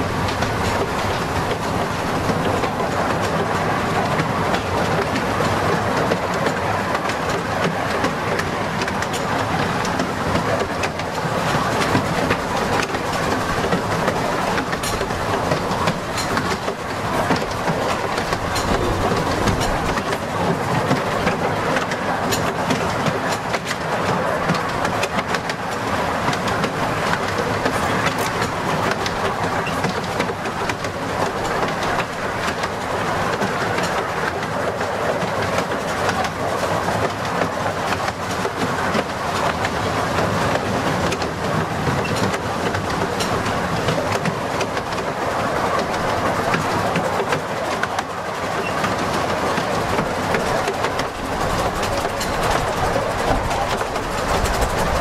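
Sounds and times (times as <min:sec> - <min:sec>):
clicks over rail joints: 0:00.0 - 0:55.0
train wheels rumbling: 0:00.0 - 0:55.0.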